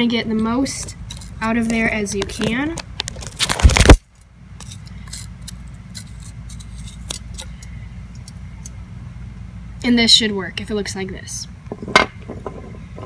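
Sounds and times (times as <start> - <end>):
steady low hum: 0.0 - 13.0
tool clicking and scraping gourd: 0.7 - 3.5, 4.6 - 8.8.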